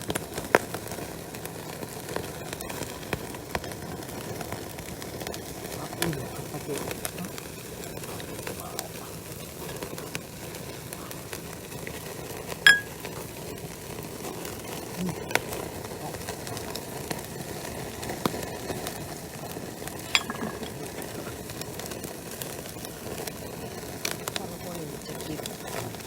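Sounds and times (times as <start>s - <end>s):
wood fire crackling: 0.0s - 26.0s
ringing clink of glass: 12.7s - 13.0s, 20.2s - 20.8s.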